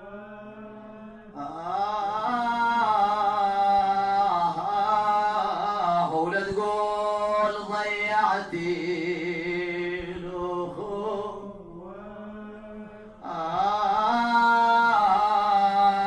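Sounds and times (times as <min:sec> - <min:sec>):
man chanting lament: 0:00.0 - 0:16.0.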